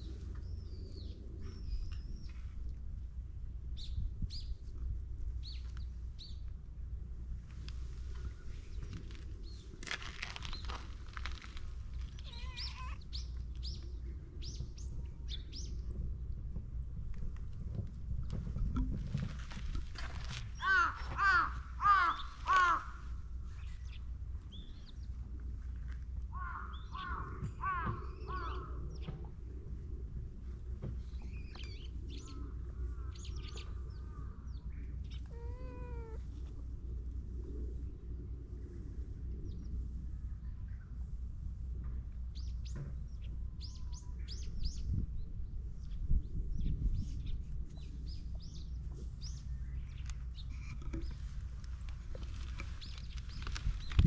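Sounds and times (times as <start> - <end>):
steady low rumble: 0.0 - 54.0
small bird chirping: 12.0 - 15.7
cat meowing: 12.1 - 13.1, 35.3 - 36.2.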